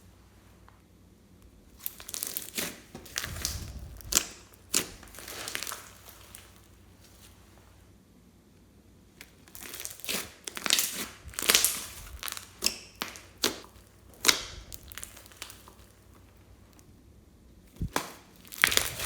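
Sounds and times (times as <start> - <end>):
slime crackling and popping: 1.7 - 6.8, 9.2 - 16.8, 17.7 - 19.0.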